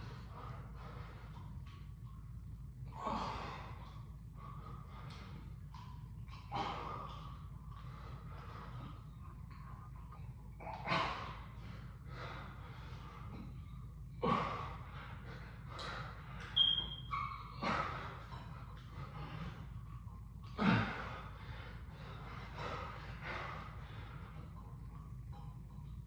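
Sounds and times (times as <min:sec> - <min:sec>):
man breathing heavily: 0:00.0 - 0:16.6, 0:17.4 - 0:26.0
steady low hum: 0:00.0 - 0:26.0.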